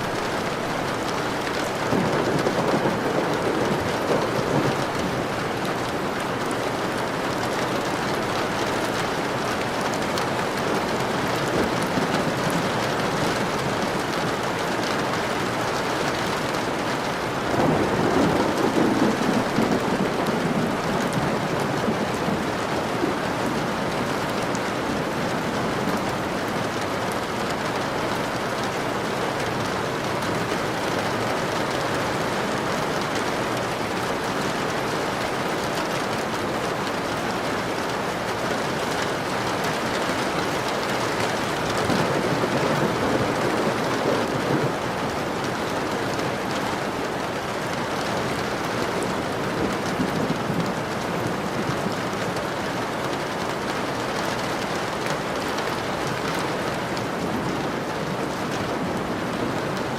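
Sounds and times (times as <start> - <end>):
heavy rain falling: 0.0 - 59.9
low rumble of thunder: 1.7 - 6.0, 17.4 - 26.7.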